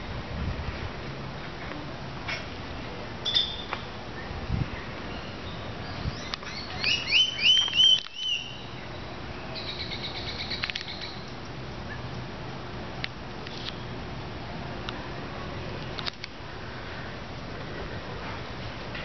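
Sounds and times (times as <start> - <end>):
rising whistled bird notes: 5.1 - 8.7.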